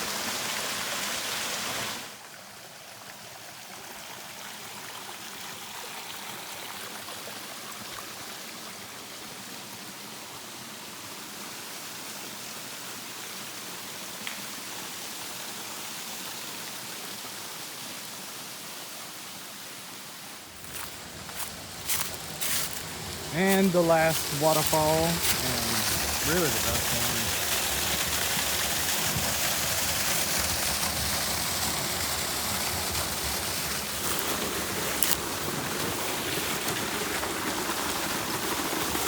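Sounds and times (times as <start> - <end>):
waterfall rushing water: 15.3 - 39.0.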